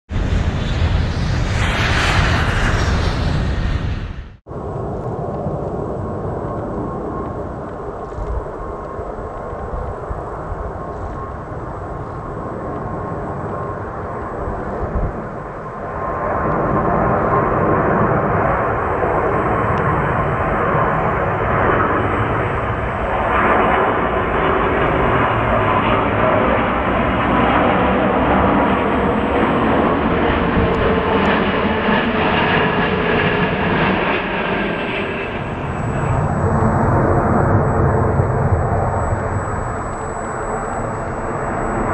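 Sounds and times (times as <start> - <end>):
jet airliner roaring past: 0.1 - 41.9.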